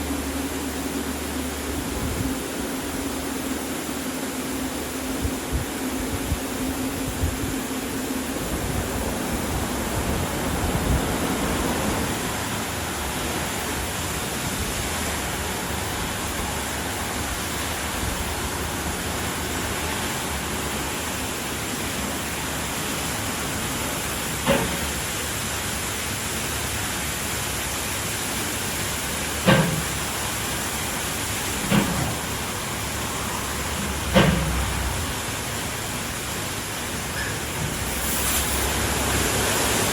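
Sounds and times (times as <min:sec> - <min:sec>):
car wash water spray and brushes: 0:00.0 - 0:39.9.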